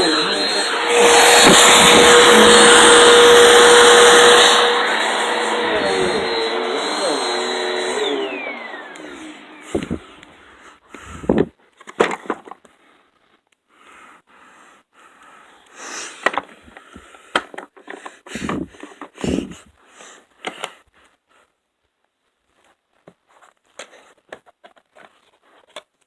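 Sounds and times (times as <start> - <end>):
knocks and thumps of handling: 9.7 - 10.1, 11.2 - 12.6.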